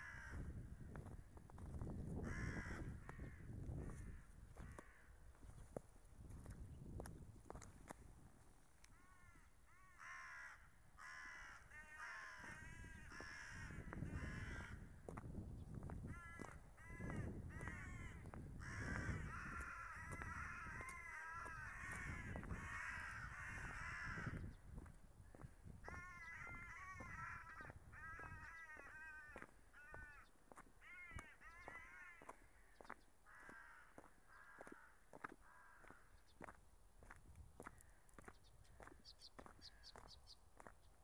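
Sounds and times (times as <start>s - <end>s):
crows cawing: 0.0s - 1.1s, 2.1s - 5.6s, 8.8s - 15.1s, 16.0s - 36.5s.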